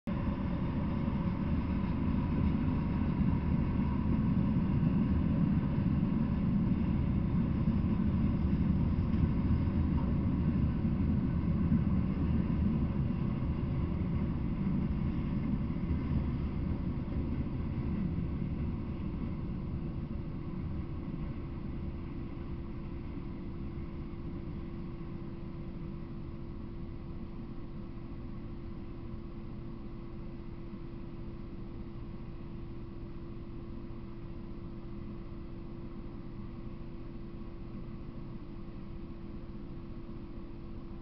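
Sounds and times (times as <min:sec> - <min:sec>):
freight train rumbling past: 0:00.1 - 0:25.4.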